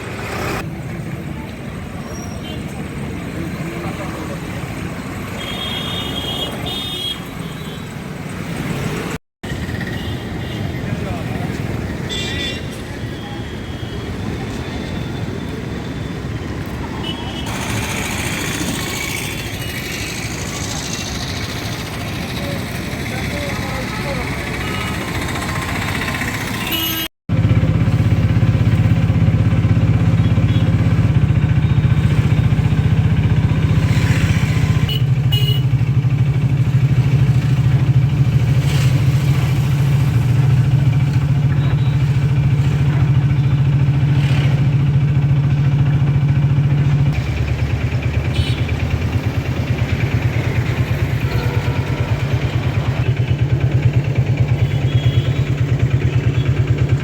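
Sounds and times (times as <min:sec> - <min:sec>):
motorcycle engine running: 0:17.5 - 0:57.0.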